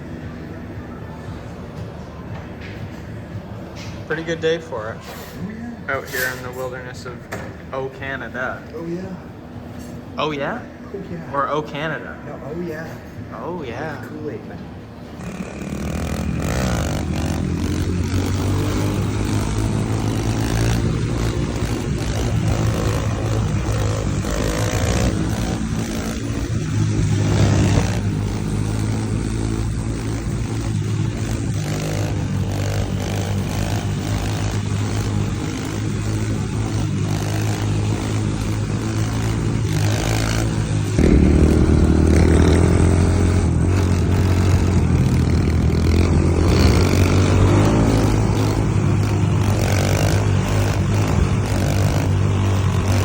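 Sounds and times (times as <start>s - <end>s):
pit bike engine running: 14.8s - 53.0s.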